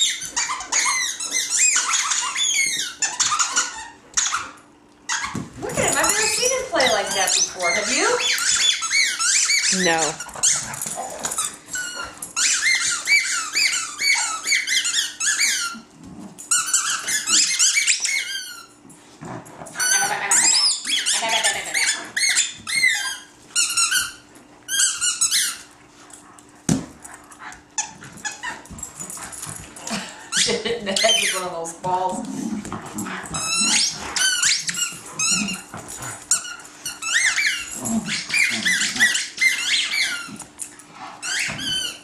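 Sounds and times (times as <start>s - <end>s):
squeaky dog toy squealing: 0.0s - 10.7s, 11.4s - 15.9s, 16.5s - 18.7s, 19.8s - 25.7s, 27.8s - 28.6s, 30.3s - 31.6s, 33.3s - 35.7s, 36.3s - 40.4s, 41.2s - 42.0s.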